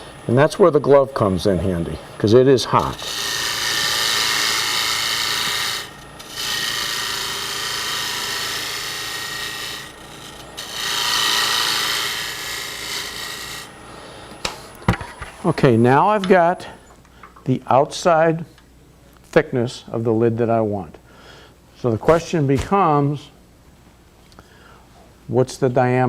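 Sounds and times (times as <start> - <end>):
lathe gouge rasping wood: 2.8 - 13.8.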